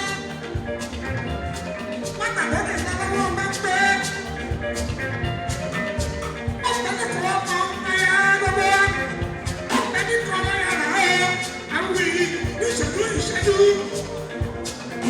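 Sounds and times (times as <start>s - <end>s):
drum and percussion strokes: 0.0s - 15.0s
pitched melody lines: 0.0s - 15.0s
person singing: 6.6s - 15.0s.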